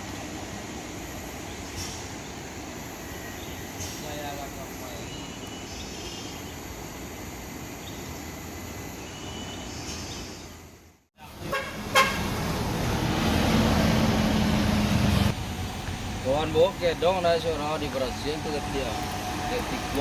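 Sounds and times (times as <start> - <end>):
road noise: 0.0 - 20.0
vehicle engines: 11.2 - 20.0.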